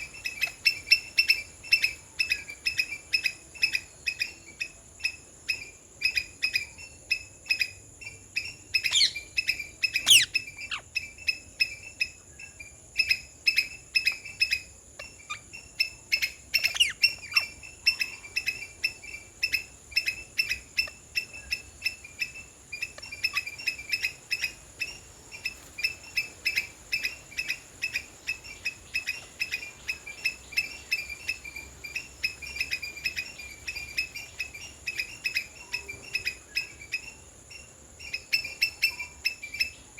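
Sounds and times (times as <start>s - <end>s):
high insect drone: 0.0s - 39.9s
sharp chirping call: 8.8s - 11.1s.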